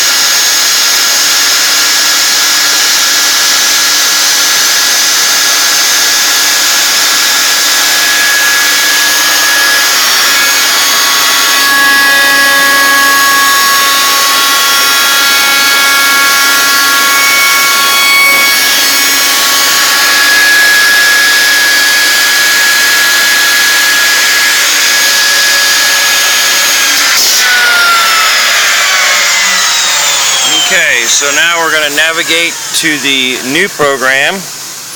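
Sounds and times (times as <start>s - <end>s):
router spindle cutting wood: 0.0s - 34.9s.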